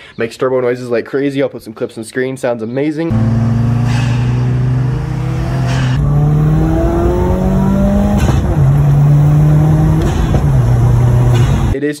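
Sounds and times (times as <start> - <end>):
car engine under load: 3.1 - 11.8.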